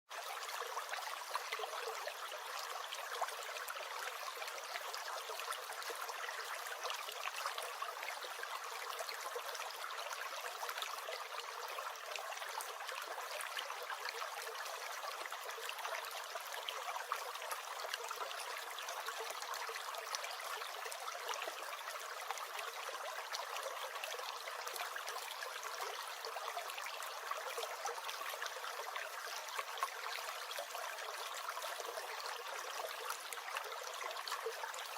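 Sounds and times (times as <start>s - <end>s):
stream gurgling: 0.1s - 34.9s.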